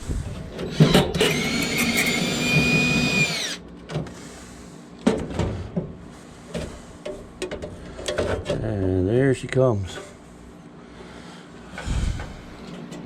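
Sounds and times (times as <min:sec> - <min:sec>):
power drill whining: 0:00.6 - 0:03.6.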